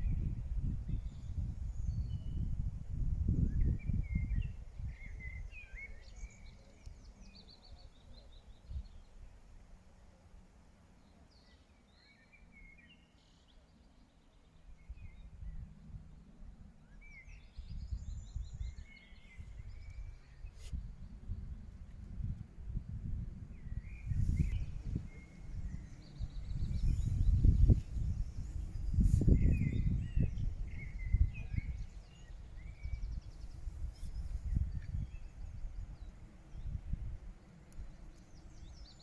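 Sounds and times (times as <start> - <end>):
songbird singing with trills: 0.0 - 2.6, 3.2 - 9.1, 23.5 - 36.8, 37.4 - 39.0.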